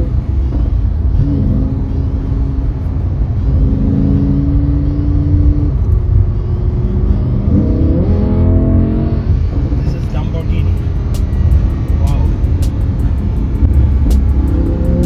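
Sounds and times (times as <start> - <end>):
sports car engine rumble: 0.0 - 15.0.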